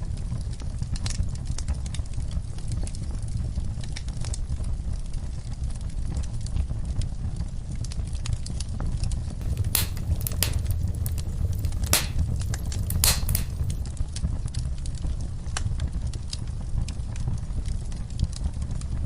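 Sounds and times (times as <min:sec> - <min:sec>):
low rumble of flames: 0:04.8 - 0:19.0
wood fire crackling: 0:09.4 - 0:14.0.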